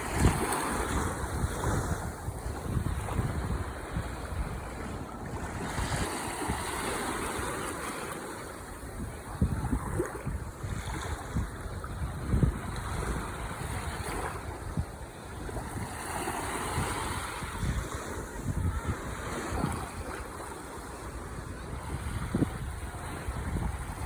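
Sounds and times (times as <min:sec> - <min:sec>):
ocean waves washing onto shore: 0:00.0 - 0:24.0
wind buffeting microphone: 0:00.0 - 0:24.0.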